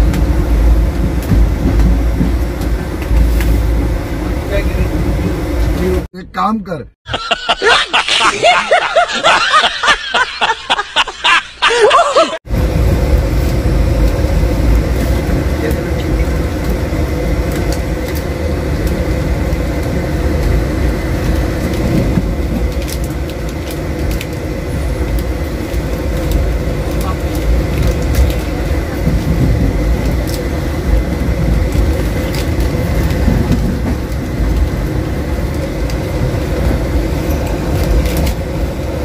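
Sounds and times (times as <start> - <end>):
train coach rumbling inside: 0.0 - 39.0
burst of laughter: 7.1 - 12.4.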